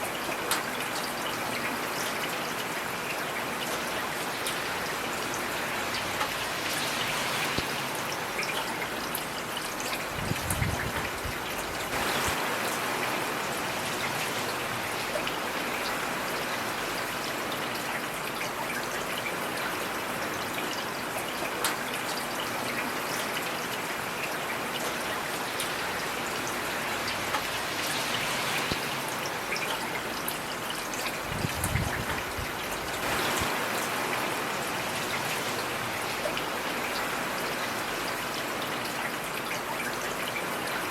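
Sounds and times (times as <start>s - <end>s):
heavy rain hissing: 4.1s - 8.4s, 10.0s - 16.9s, 25.4s - 30.2s, 31.1s - 38.1s.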